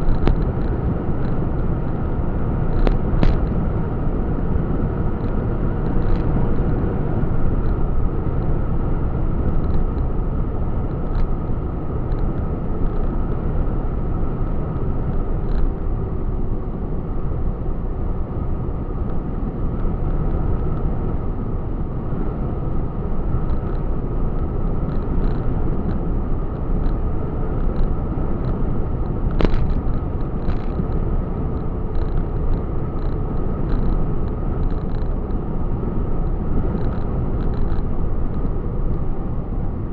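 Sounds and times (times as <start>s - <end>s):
light clicks and rattles: 0.0s - 1.8s, 2.7s - 3.7s, 5.2s - 8.6s, 9.3s - 10.2s, 10.8s - 13.5s, 14.3s - 15.8s, 23.4s - 39.1s
truck engine and road noise: 0.0s - 39.9s.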